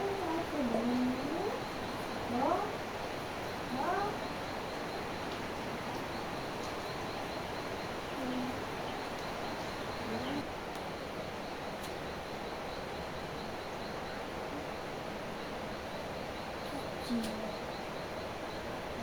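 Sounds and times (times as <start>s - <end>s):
faint high chirping: 3.7s - 5.2s.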